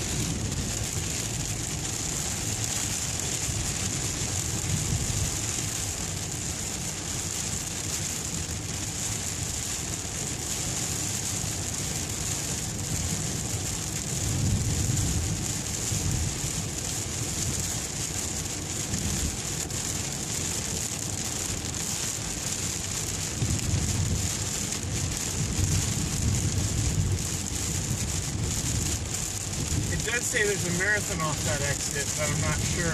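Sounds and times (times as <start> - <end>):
low rumble: 0.0 - 6.4, 23.3 - 32.9
rain falling on a car: 0.0 - 32.9.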